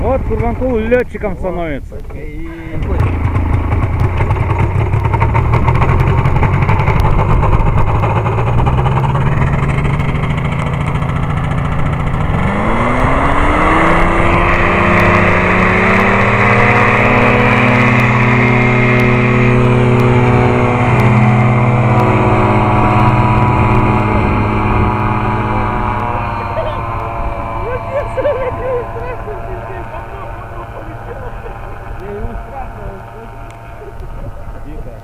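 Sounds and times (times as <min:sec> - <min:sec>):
small aircraft engine running: 0:00.0 - 0:35.0.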